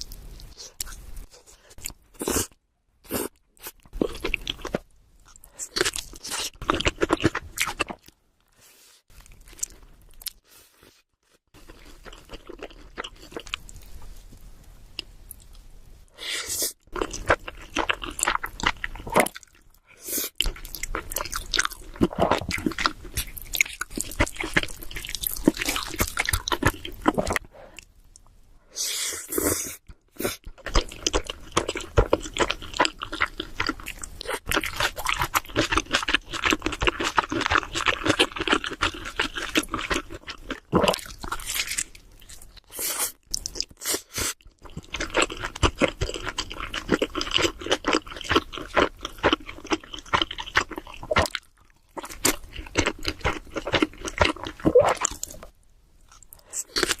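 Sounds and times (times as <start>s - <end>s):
chewing and crunching pizza: 9.1s - 14.2s, 16.9s - 19.8s, 20.4s - 27.5s, 29.9s - 57.0s.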